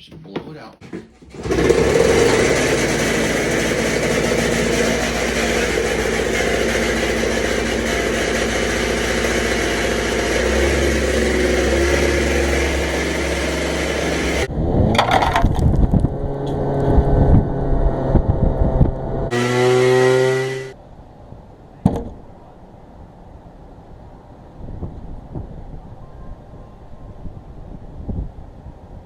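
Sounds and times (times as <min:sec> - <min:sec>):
knocking and rattling: 0:00.0 - 0:06.5
blower blowing: 0:00.9 - 0:20.8
motor tone rising: 0:01.4 - 0:20.8.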